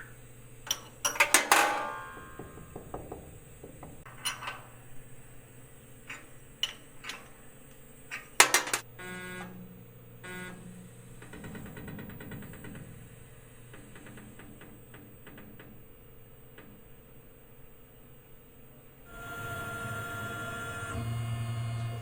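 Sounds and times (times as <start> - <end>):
sharp metal knocks: 0.7 - 4.8
short motor whines: 19.1 - 22.0.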